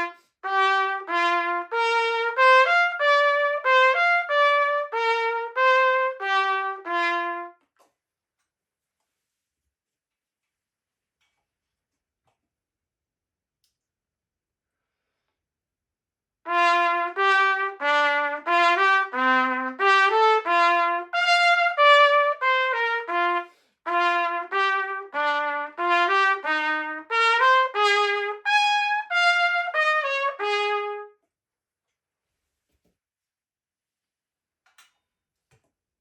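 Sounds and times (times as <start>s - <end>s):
trumpet melody: 0.0s - 7.7s, 16.5s - 31.2s.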